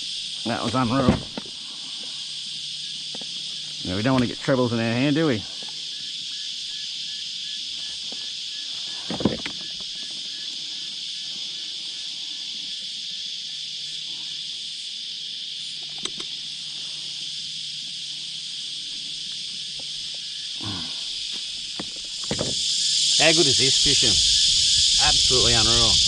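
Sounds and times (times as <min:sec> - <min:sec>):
cicadas buzzing: 0:00.0 - 0:26.0
sharp click from handling gear: 0:15.8 - 0:16.3.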